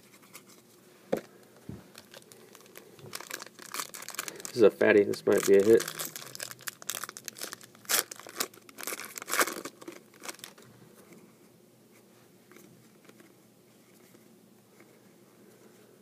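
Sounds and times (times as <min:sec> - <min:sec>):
wrapper crinkling and rustling: 0:01.9 - 0:10.7.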